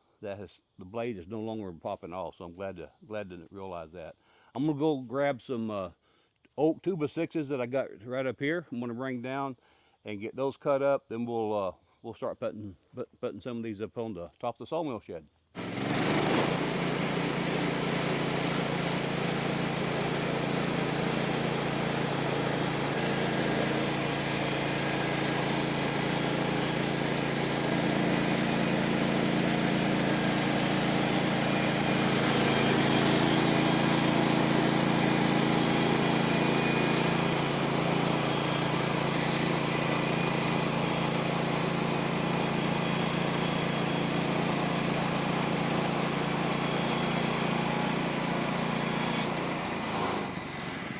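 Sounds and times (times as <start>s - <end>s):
engine running: 15.6s - 50.9s.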